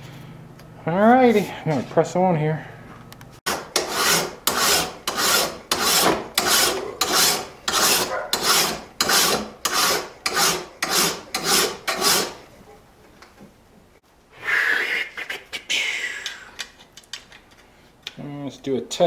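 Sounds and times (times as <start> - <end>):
hand file rasping over steel: 3.5 - 12.4.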